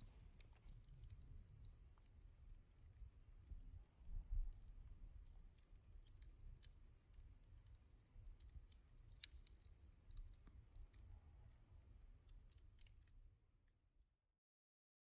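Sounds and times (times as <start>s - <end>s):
campfire crackling: 0.0s - 2.9s, 5.3s - 11.1s.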